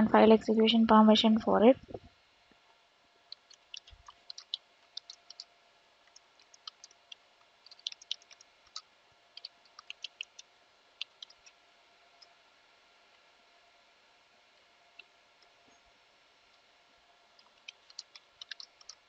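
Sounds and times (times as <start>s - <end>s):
computer keyboard typing: 3.4s - 5.5s, 6.1s - 8.8s, 9.4s - 11.5s, 17.4s - 19.0s.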